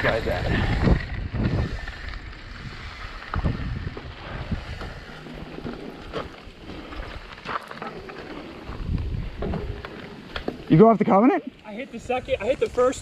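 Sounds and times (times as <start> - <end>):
wind buffeting microphone: 0.0 - 7.4, 8.3 - 10.4.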